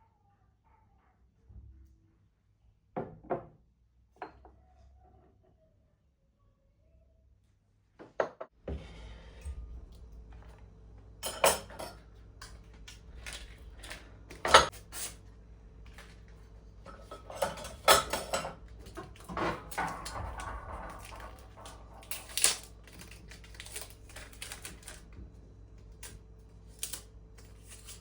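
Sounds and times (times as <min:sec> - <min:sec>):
dishes clinking and knocking: 0:04.2 - 0:04.6, 0:11.2 - 0:12.6, 0:13.2 - 0:15.1, 0:16.9 - 0:23.1
low steady hum: 0:08.6 - 0:28.0.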